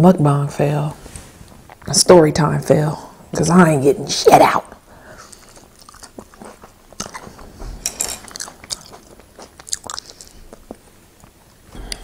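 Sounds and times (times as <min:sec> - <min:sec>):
wet chewing sounds: 0:05.1 - 0:12.0
crackly bites: 0:08.3 - 0:10.8.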